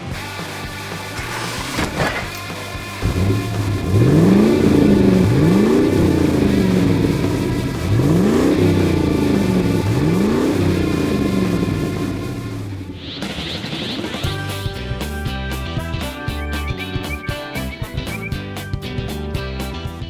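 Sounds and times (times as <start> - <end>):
vehicle engine revving: 0.0 - 13.4.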